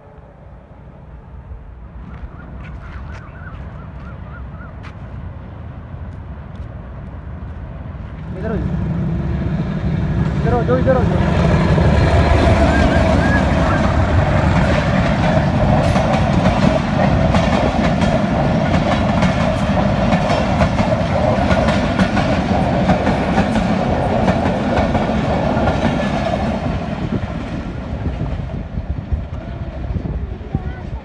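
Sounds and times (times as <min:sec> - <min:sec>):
train wheels clicking over rail joints: 0:11.7 - 0:28.4.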